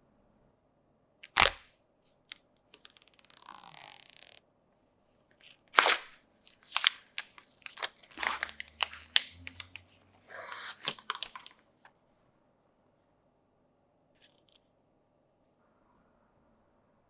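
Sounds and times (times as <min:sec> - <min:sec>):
packaging tearing or sliding: 0:01.2 - 0:01.6, 0:05.4 - 0:11.6
packaging crinkling and scraping: 0:05.4 - 0:11.6.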